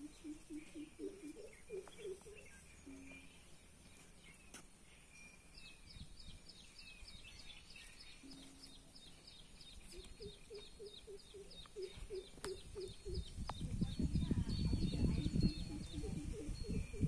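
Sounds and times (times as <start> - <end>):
lower repeated bird call: 0.0 - 3.5, 7.4 - 17.0.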